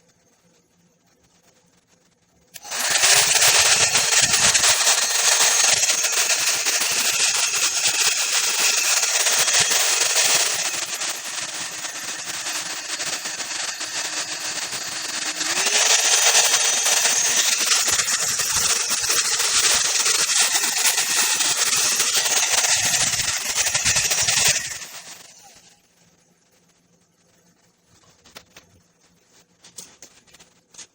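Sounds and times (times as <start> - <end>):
hot air brush fan motor humming: 2.5 - 25.9.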